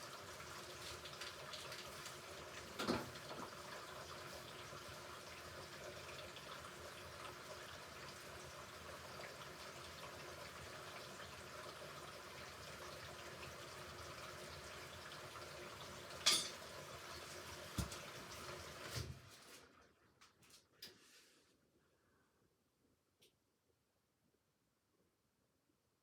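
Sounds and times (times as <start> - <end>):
water running into drum: 0.0 - 19.3.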